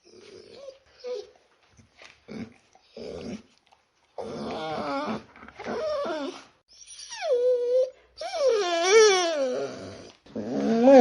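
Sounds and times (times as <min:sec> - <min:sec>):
dog whimpering: 0:00.0 - 0:01.4, 0:04.2 - 0:11.0.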